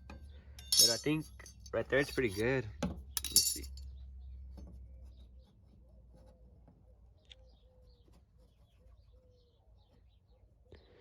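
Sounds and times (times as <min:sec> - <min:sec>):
faint bird calls: 0:05.0 - 0:11.0.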